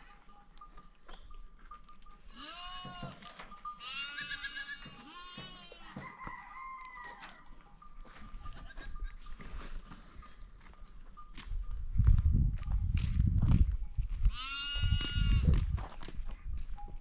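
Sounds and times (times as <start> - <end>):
goat kids bleating: 2.3 - 6.0, 8.4 - 9.3, 14.3 - 15.6.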